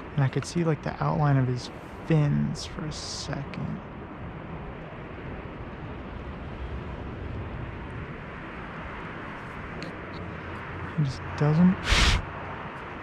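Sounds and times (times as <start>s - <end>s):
rushing background noise: 7.4s - 12.7s.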